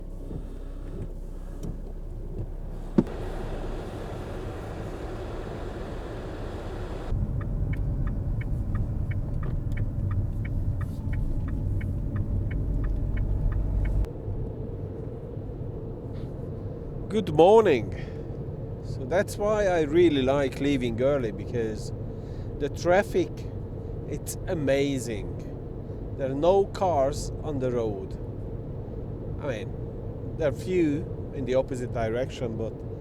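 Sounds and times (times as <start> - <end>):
turn signal ticking: 0.0 - 14.1
car engine rumble: 0.0 - 33.0.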